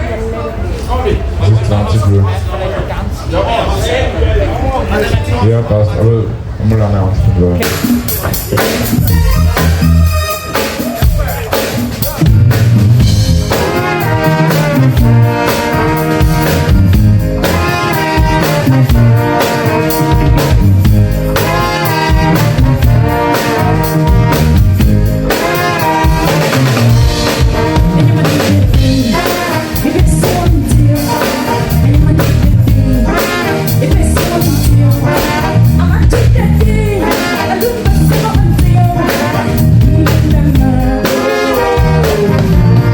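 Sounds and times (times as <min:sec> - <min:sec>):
bass: 0:04.8 - 0:42.9
drum kit: 0:07.6 - 0:42.9
brass-like melody: 0:08.6 - 0:42.9.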